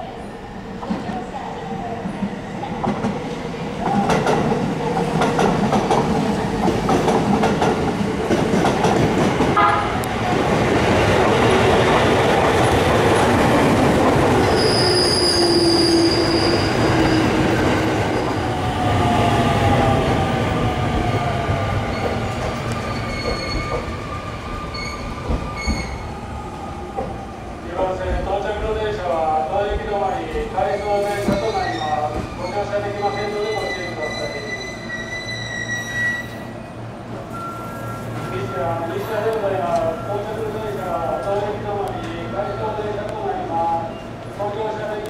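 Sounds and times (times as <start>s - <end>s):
train wheels clacking on rails: 3.8s - 14.8s, 20.8s - 24.0s.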